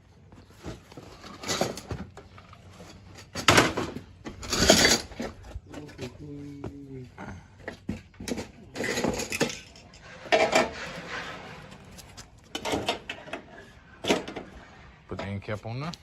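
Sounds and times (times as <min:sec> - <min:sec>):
sheet metal clanking and rattling: 0:08.0 - 0:15.4.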